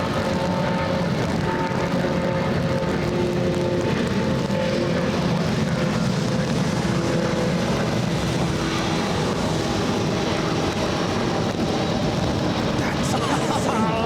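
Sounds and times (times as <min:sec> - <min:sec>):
jet engines at takeoff thrust: 0:00.0 - 0:14.0.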